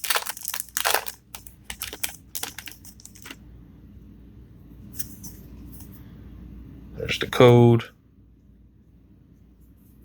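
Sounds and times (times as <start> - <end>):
foil pack crinkling: 0.0 - 3.4.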